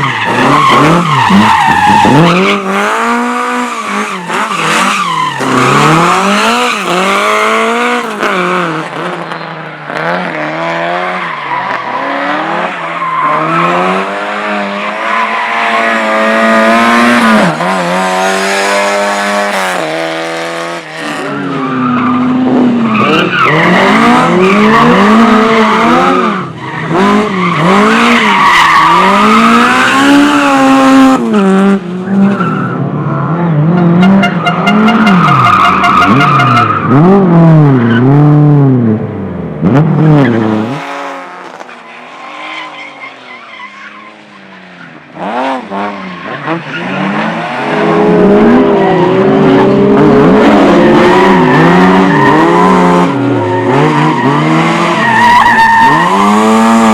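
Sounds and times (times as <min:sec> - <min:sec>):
car engine revving hard: 0:00.2 - 0:14.8, 0:15.5 - 0:21.3, 0:45.1 - 0:56.9.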